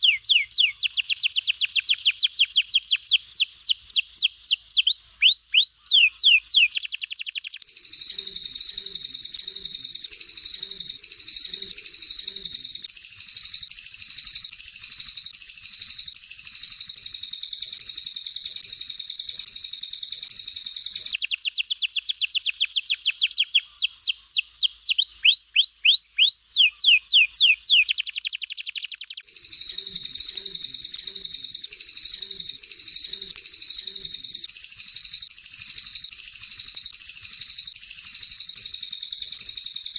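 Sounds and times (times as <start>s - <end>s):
high-pitched bird warbling: 0.0s - 12.9s, 21.0s - 35.0s
downward-swept whistled bird notes: 0.0s - 39.9s.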